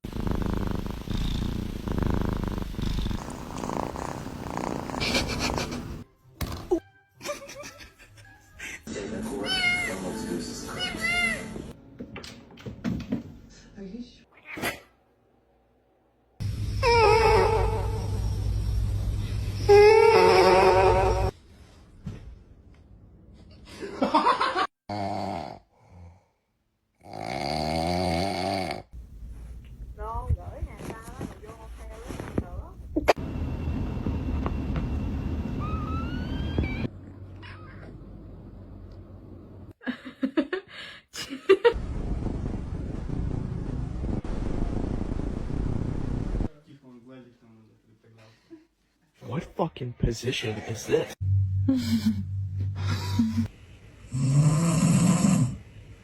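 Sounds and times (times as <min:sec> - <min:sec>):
cat purring: 0:00.0 - 0:06.0
pet snoring: 0:00.0 - 0:06.0, 0:27.0 - 0:29.0, 0:54.1 - 0:55.6
rising squeak: 0:34.4 - 0:37.0.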